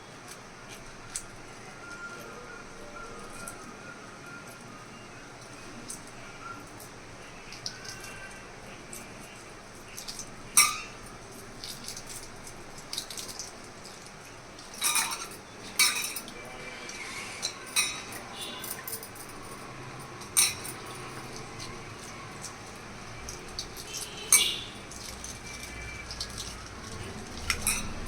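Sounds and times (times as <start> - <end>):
dishes and utensils clinking: 7.5 - 28.0.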